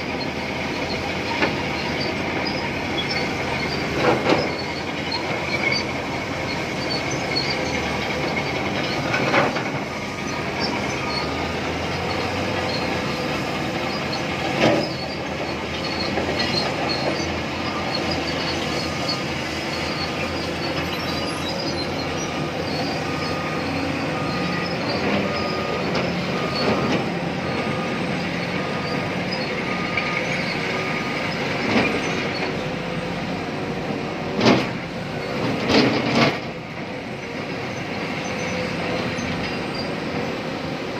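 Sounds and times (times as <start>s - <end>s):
diesel engine and hydraulic drone: 0.0s - 40.9s.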